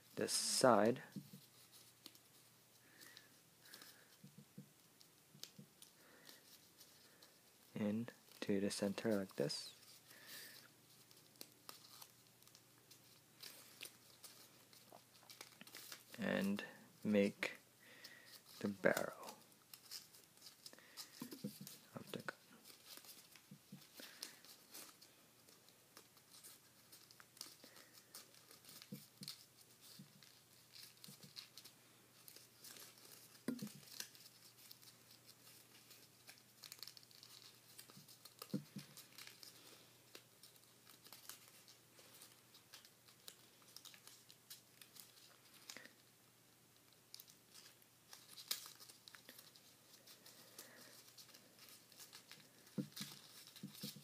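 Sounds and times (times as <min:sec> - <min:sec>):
paper crinkling: 0:00.0 - 0:16.8, 0:17.4 - 0:46.1, 0:46.7 - 0:54.0.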